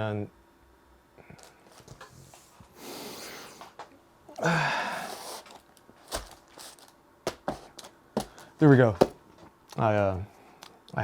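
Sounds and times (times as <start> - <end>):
man breathing in: 2.7 - 3.7, 4.4 - 5.4
man sighing: 4.3 - 5.3.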